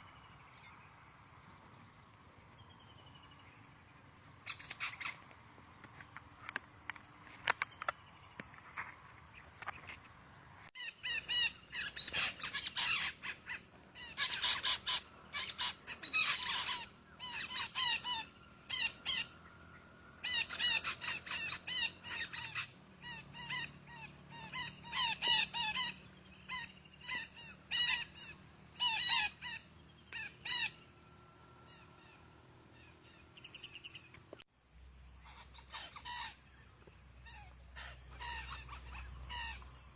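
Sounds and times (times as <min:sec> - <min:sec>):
parakeets calling shrilly: 0:04.4 - 0:05.2, 0:10.8 - 0:30.9, 0:35.2 - 0:39.9.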